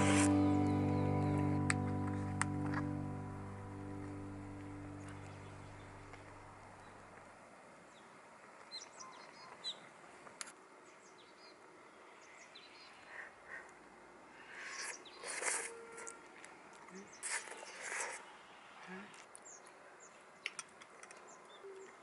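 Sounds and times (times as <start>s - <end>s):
background music: 0.0s - 6.6s
small birds chirping: 3.8s - 15.7s.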